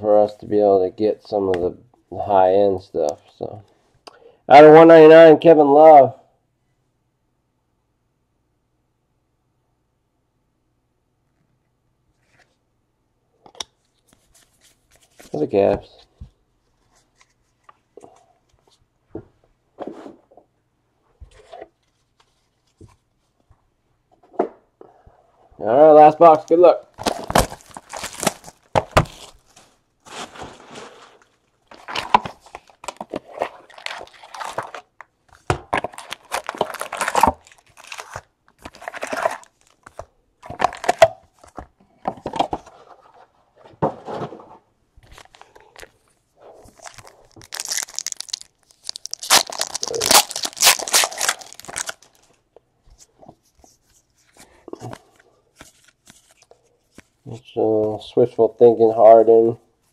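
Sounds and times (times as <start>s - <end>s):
card pack wrappers tearing and crinkling: 26.2s - 30.8s, 31.7s - 34.9s, 35.7s - 41.1s, 46.7s - 52.3s.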